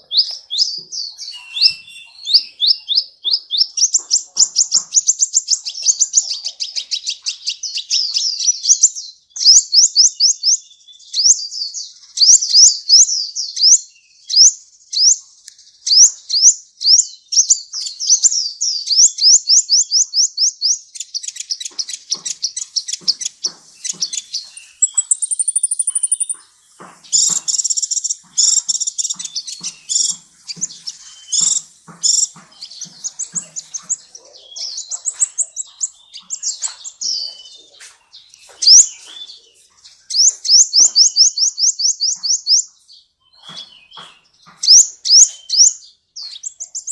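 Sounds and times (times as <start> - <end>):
thin high bird trill: 0.0 - 8.7, 21.0 - 42.7
harsh scratchy bird chattering: 0.0 - 10.3, 17.4 - 46.9
sunbird chirping song: 0.0 - 46.9.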